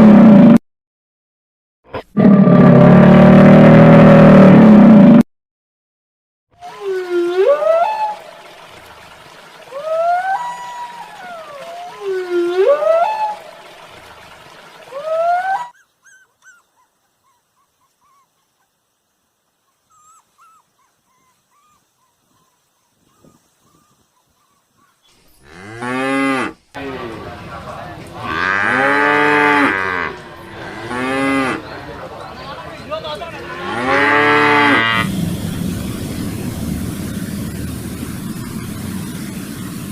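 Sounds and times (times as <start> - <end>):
cows mooing: 28.0 - 32.4, 33.2 - 35.1.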